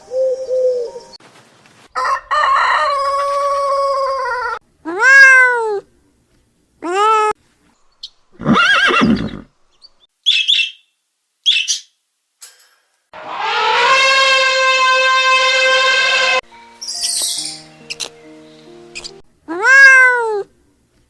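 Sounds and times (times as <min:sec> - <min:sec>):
animal cries: 0:03.0 - 0:05.8, 0:06.8 - 0:07.4, 0:13.2 - 0:16.4, 0:19.0 - 0:20.5
long held animal call: 0:13.2 - 0:16.4
high squeaks: 0:13.2 - 0:18.2
wavering animal call: 0:13.2 - 0:18.2.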